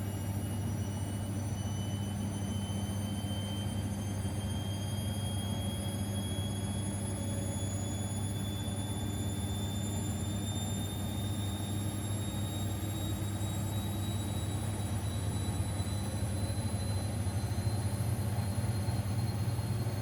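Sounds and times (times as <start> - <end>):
faint high whine: 0.0 - 20.0
washing machine humming: 6.5 - 20.0.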